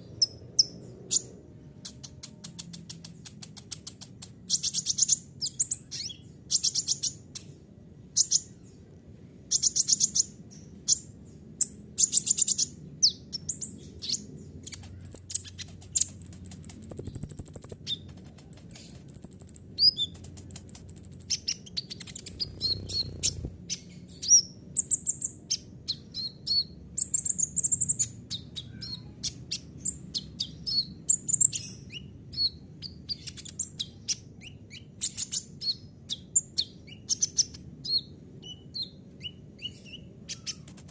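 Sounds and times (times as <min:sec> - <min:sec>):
faint low hum: 0:00.0 - 0:40.9
sunbird singing: 0:09.5 - 0:40.9.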